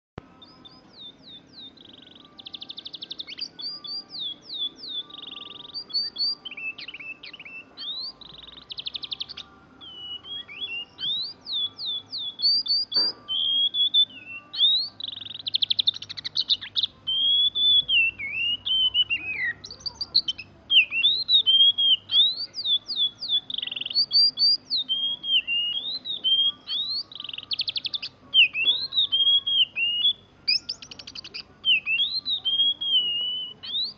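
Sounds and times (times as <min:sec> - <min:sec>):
bird singing whistles and trills: 0:00.3 - 0:33.9.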